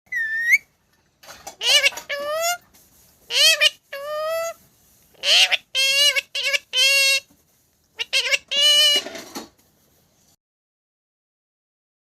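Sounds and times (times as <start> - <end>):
parrot talking: 1.6 - 2.6, 3.3 - 7.3, 8.0 - 9.2
parrot hissing: 1.6 - 7.3, 8.0 - 9.1.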